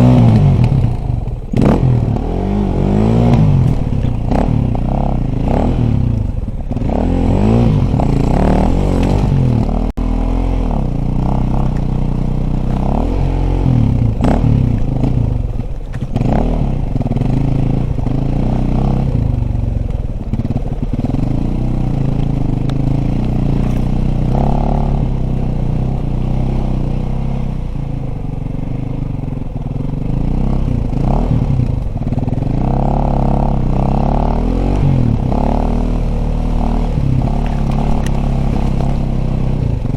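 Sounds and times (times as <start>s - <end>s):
clattering and scraping: 0.0s - 9.8s, 14.2s - 24.6s, 36.8s - 39.9s
dirt bike engine revving: 0.0s - 39.9s.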